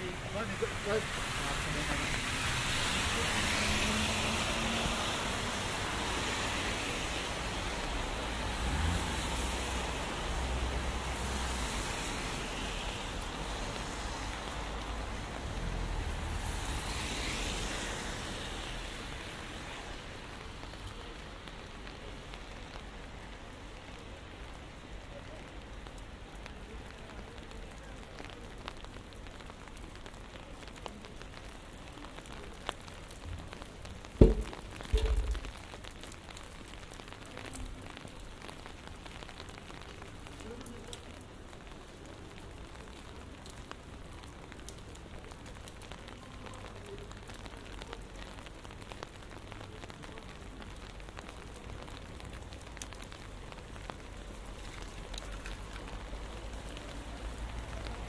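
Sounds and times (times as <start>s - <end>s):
steady rain: 0.0s - 58.0s
heavy low thumps: 34.2s - 35.5s.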